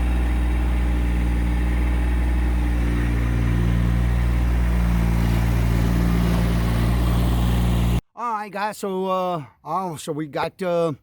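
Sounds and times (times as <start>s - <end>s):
tractor diesel engine idling: 0.0s - 8.0s.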